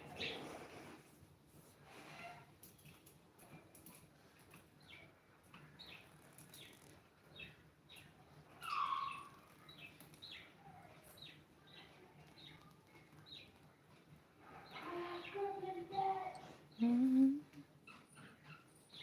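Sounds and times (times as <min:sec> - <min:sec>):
bird chirping: 0:04.8 - 0:13.6.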